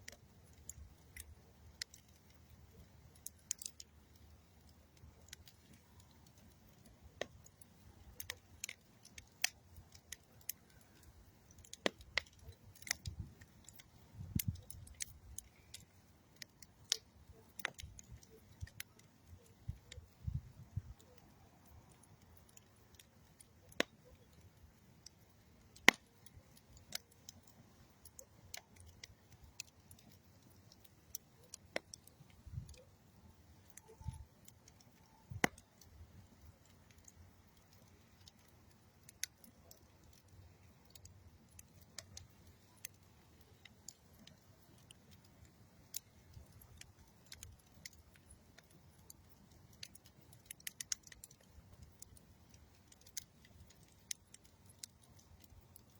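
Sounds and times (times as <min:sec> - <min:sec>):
campfire crackling and popping: 0:00.0 - 0:55.9.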